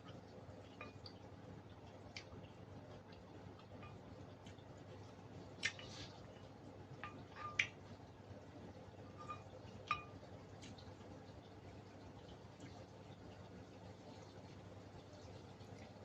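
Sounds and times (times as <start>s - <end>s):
quiet eating sounds: 0.0s - 16.0s
tableware clinking on plate: 9.2s - 10.1s.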